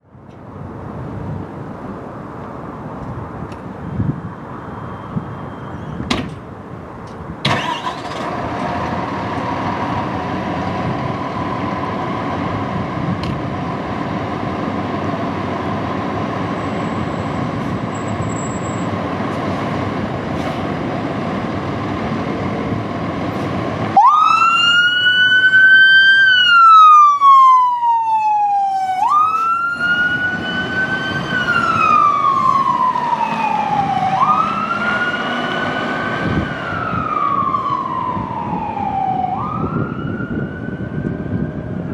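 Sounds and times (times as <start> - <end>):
fire engine rumbling: 0.0 - 41.9
siren wailing: 23.9 - 41.9.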